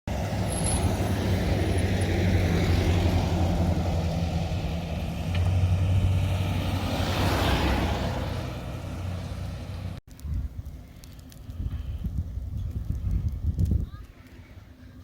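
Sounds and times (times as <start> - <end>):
motor vehicle humming: 0.1 - 10.0.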